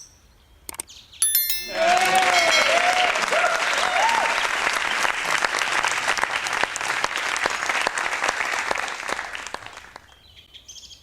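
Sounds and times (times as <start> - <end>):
crowd applauding: 1.6 - 10.2.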